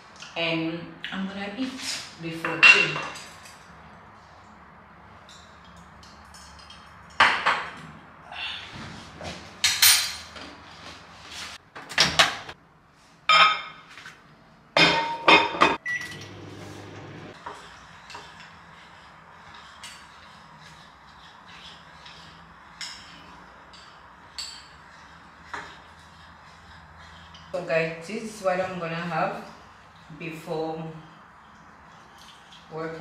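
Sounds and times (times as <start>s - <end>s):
short beep: 15.8s - 16.3s.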